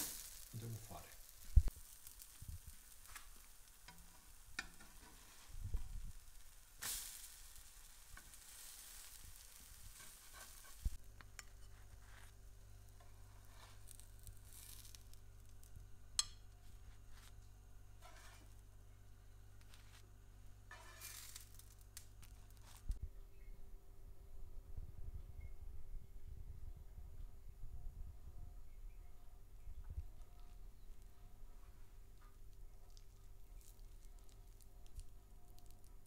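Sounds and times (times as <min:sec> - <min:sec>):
fritters sizzling in oil: 0:00.0 - 0:18.7, 0:19.6 - 0:23.0
low steady hum: 0:00.0 - 0:36.0
spatula tapping and scraping pan: 0:03.0 - 0:05.5.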